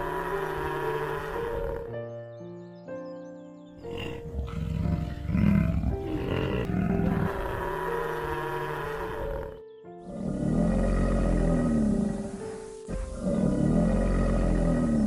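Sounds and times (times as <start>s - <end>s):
background music: 0.0s - 15.0s
large animal low rough call: 3.9s - 15.0s.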